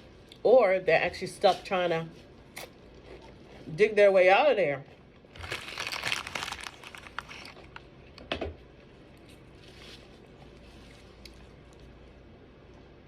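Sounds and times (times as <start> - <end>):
crunchy bites of fried food: 5.2 - 8.3.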